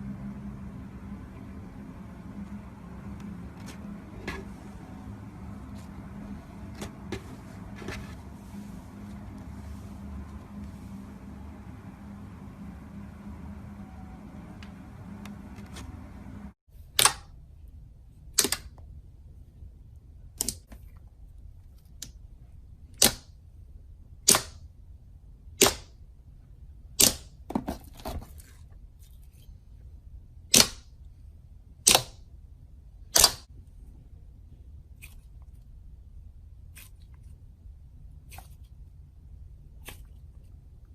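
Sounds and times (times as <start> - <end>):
low steady hum: 0.0 - 25.5.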